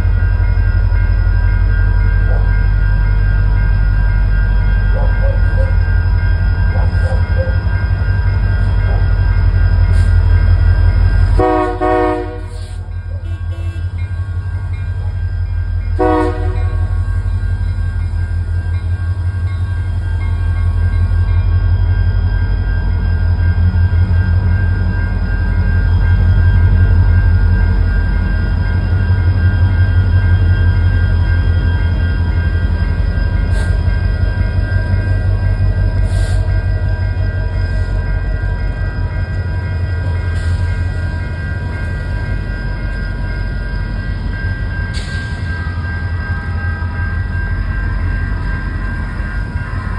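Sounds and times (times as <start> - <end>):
freight train rumbling: 0.0 - 49.9
train horn blasts: 11.4 - 14.0, 16.0 - 17.0.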